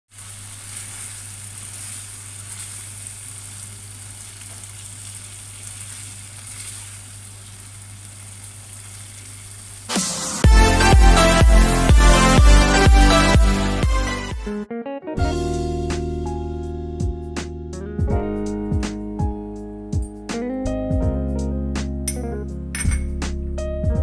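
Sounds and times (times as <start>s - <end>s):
meat sizzling in sauce: 0.1s - 12.8s
spatula stirring in pan: 0.2s - 9.7s
electronic music with plucked beat: 10.0s - 14.6s.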